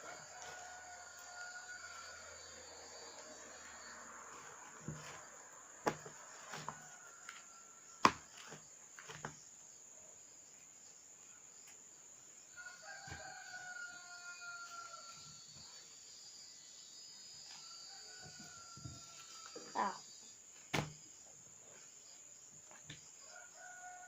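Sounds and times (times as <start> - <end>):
rooster crowing faintly: 0.0 - 8.6, 12.5 - 15.6, 23.0 - 24.0.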